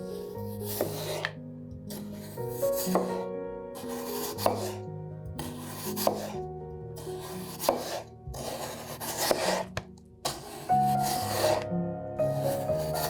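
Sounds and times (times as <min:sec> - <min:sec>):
soft background music: 0:00.0 - 0:13.0
knife cutting on a board: 0:00.5 - 0:03.2, 0:03.8 - 0:04.8, 0:05.4 - 0:06.4, 0:07.0 - 0:11.6, 0:12.3 - 0:13.0.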